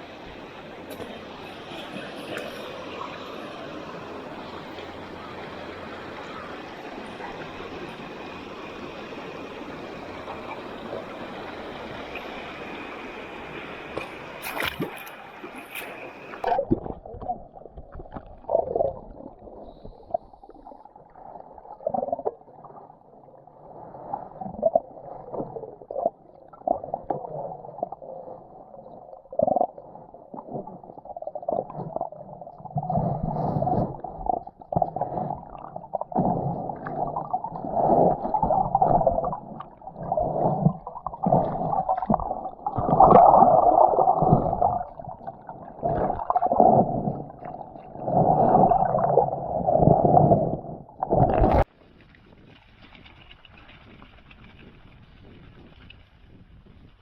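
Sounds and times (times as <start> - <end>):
stream flowing: 0.0 - 23.4, 33.9 - 50.2, 51.0 - 52.5
water gurgling and splashing: 0.0 - 55.9.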